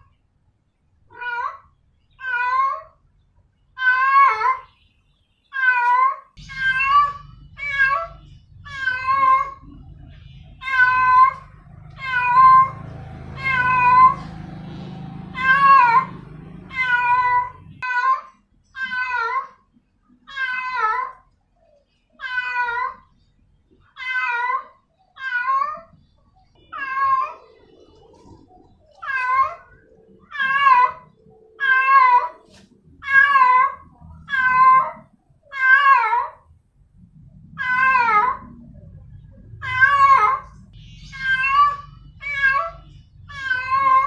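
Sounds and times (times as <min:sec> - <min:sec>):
cat meowing loudly: 0:05.5 - 0:09.6, 0:10.6 - 0:14.3, 0:15.3 - 0:19.6, 0:20.3 - 0:21.2, 0:22.2 - 0:23.1, 0:24.0 - 0:25.9, 0:29.0 - 0:32.4, 0:33.0 - 0:36.4, 0:37.6 - 0:38.5, 0:41.1 - 0:44.0
low steady rumble: 0:06.4 - 0:17.8.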